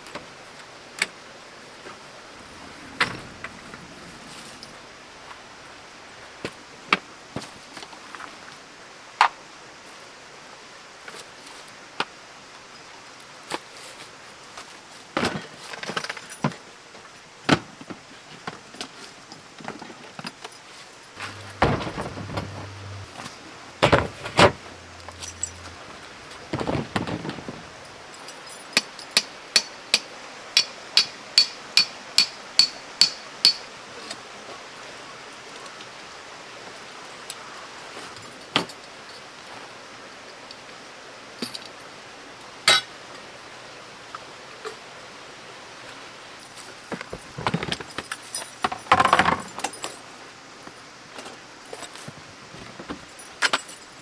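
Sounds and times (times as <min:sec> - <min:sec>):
metal clinks and knocks: 0:21.2 - 0:33.6, 0:47.2 - 0:50.0.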